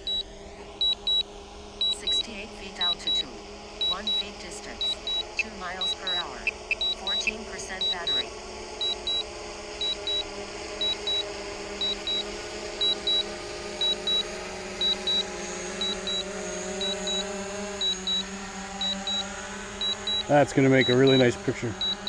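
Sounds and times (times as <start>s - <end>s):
drone propellers humming: 0.0s - 22.0s
remote controller short high beeps: 3.8s - 4.2s, 4.8s - 9.2s, 10.8s - 16.2s, 16.8s - 18.2s, 19.8s - 22.0s.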